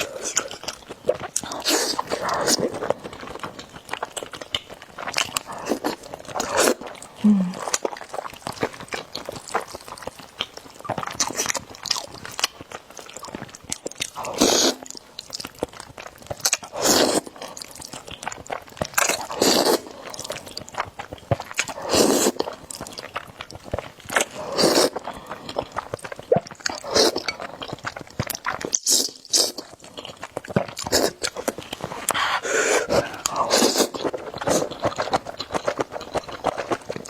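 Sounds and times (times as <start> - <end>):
wet chewing and smacking: 0.0 - 37.0
noodle slurping: 14.3 - 14.8, 19.2 - 20.3, 21.7 - 22.4, 24.3 - 25.2, 30.8 - 35.2.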